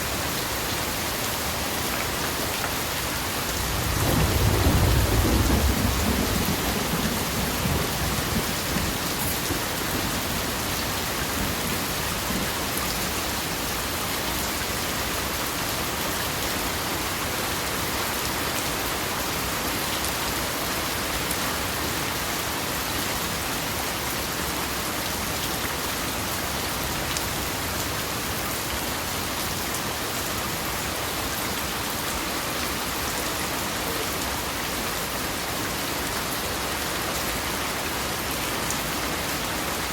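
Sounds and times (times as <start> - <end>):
heavy rain pattering: 0.0 - 39.9
low rumble of thunder: 3.6 - 12.6.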